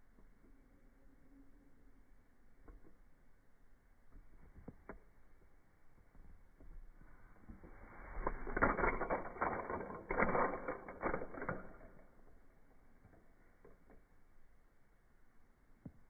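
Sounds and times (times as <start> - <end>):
rapid mechanical clicking and rattling: 8.2 - 12.6.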